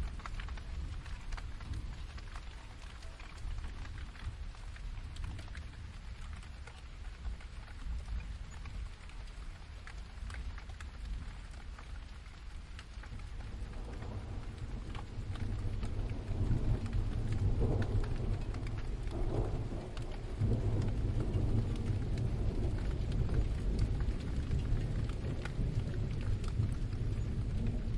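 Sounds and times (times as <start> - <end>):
raindrops ticking: 0.0 - 27.9
steady rain: 0.0 - 27.9
thunder rumbling: 11.0 - 27.9.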